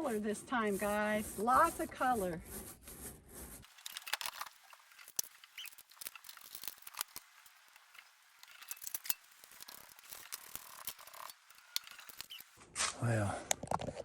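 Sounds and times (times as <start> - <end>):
short scratching sounds: 0.0 - 3.9.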